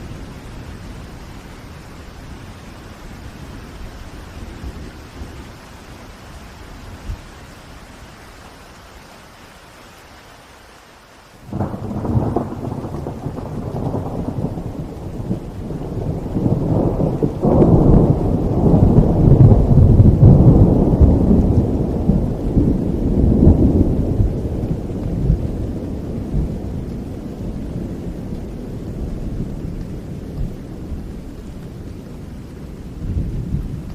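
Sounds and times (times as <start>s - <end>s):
steady rain: 0.0s - 33.9s
thunder rolling: 11.5s - 31.2s.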